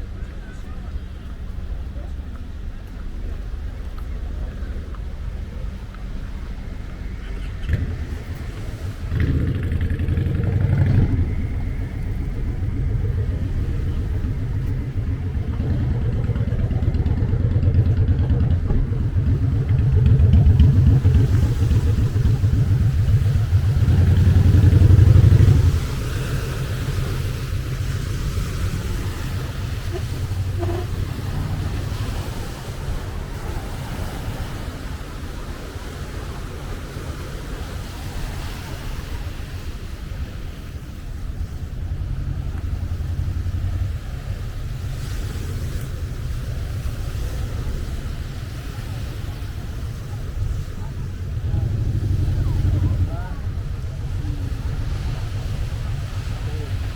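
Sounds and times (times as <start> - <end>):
engine running with pulsing rumble: 0.0 - 56.9.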